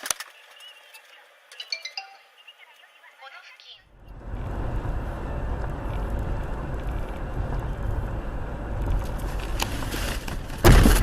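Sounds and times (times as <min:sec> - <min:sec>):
vehicle engine and road noise: 0:03.8 - 0:11.0.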